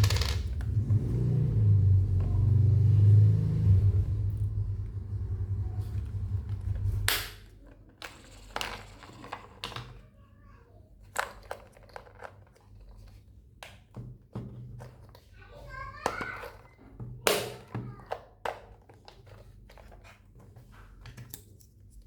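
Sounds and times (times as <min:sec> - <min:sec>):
toy electric motor humming: 0:08.0 - 0:10.0.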